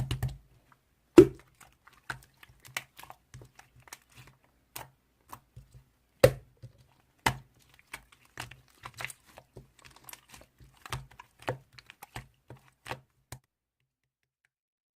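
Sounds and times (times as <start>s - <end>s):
crinkling: 6.6s - 13.4s.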